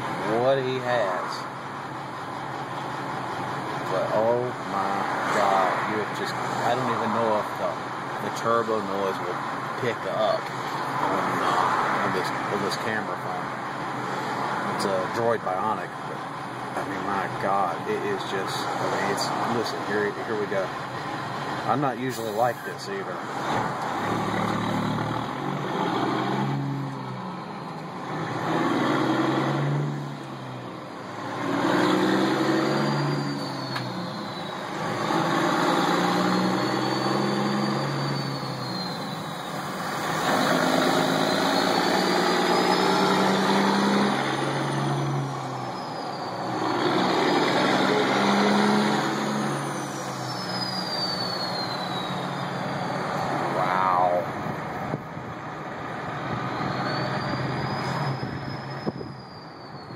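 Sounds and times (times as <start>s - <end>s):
truck diesel engine: 0.0s - 59.9s
high turbo whistle: 32.2s - 34.9s, 35.6s - 54.2s.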